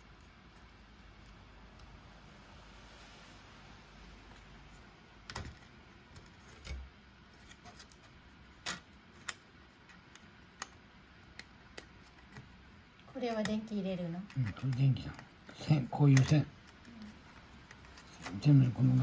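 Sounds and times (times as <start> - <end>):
plastic parts clicking and knocking: 14.2 - 18.4.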